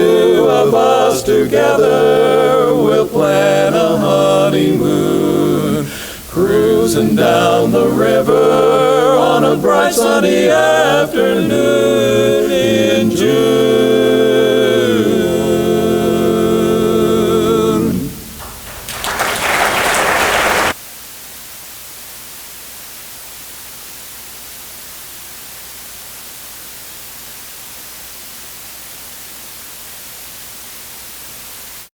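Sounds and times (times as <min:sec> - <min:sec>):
a cappella quartet singing chord: 0:00.0 - 0:20.8
steady hiss: 0:00.0 - 0:31.9
audience applause: 0:18.4 - 0:20.8.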